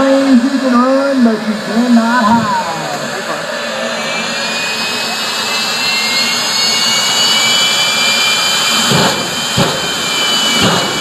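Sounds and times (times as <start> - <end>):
jet engine high-pitched whine: 0.0 - 11.0.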